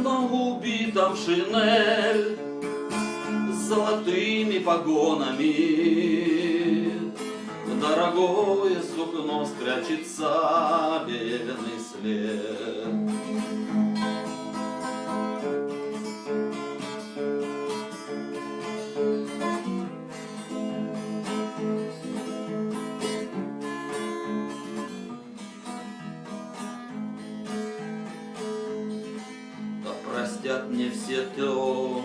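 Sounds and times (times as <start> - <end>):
acoustic guitar picking and strumming: 0.0 - 32.0.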